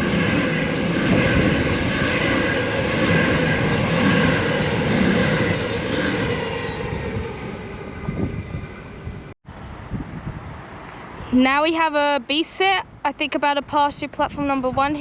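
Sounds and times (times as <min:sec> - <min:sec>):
electric train passing: 0:00.0 - 0:09.8.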